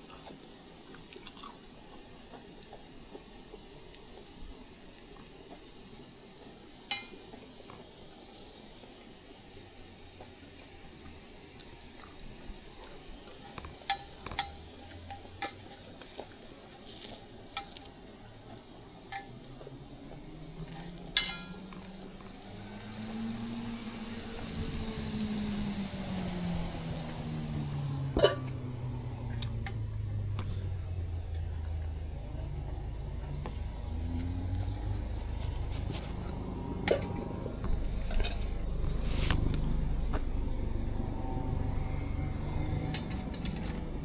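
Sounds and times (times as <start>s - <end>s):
sharp pops and crackles: 6.9s - 8.1s, 12.8s - 30.6s
vehicle engine passing: 18.9s - 44.0s.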